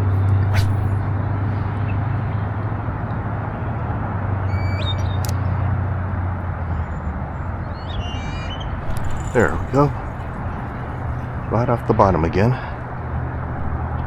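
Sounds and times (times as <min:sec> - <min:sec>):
low outdoor rumble: 0:05.4 - 0:14.0
bird chirping: 0:07.7 - 0:11.6.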